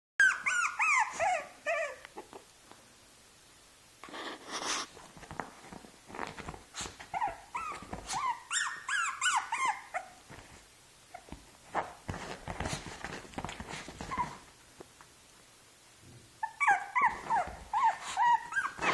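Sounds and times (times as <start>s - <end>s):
puppy yelping: 0.2s - 2.3s, 7.1s - 10.2s, 14.0s - 14.5s, 16.4s - 18.9s
scuffling noises: 4.1s - 8.5s, 9.9s - 15.0s, 17.0s - 18.9s.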